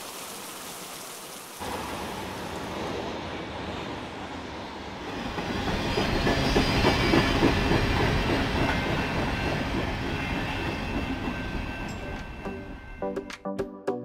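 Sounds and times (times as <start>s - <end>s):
freight train wheels clacking: 5.1s - 13.3s.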